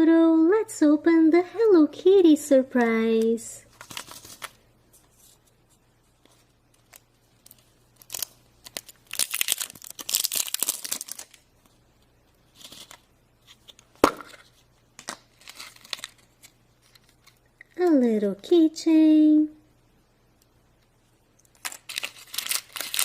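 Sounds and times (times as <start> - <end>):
packaging being torn open: 6.8 - 11.4, 15.2 - 17.4, 21.6 - 23.0.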